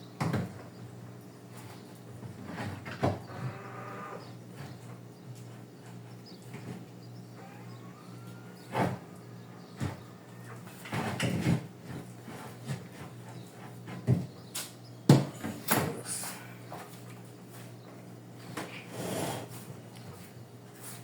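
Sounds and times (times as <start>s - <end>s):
steady low hum: 0.0s - 21.0s
knocks and clatter in refrigerator: 0.2s - 0.8s, 2.2s - 3.6s, 8.6s - 14.5s, 15.1s - 16.1s.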